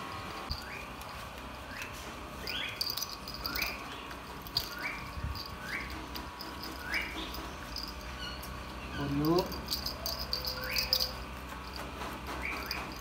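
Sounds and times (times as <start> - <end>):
bird chirping: 1.6 - 11.2.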